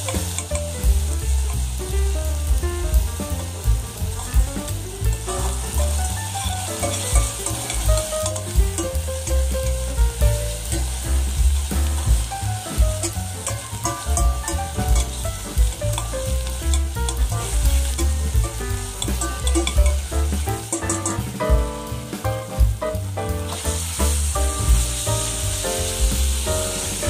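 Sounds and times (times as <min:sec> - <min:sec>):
background music with beat: 0:00.0 - 0:27.0
onions sizzling in oil: 0:00.0 - 0:27.0
metal spoon scraping pot: 0:20.7 - 0:21.2.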